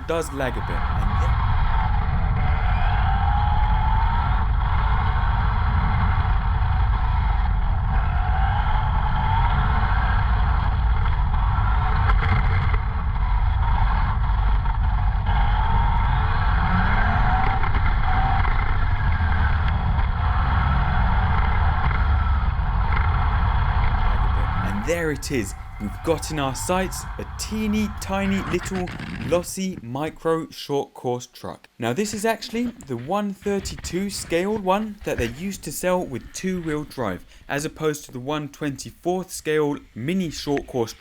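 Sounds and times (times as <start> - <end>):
wind and road rumble: 0.0 - 29.5.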